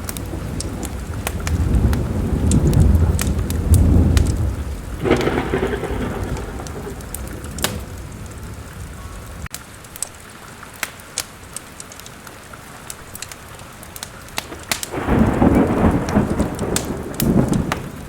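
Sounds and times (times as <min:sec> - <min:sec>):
thunder rumbling: 0:00.0 - 0:09.5, 0:14.4 - 0:18.0
steady rain: 0:00.0 - 0:18.0
wood fire crackling: 0:00.0 - 0:18.0.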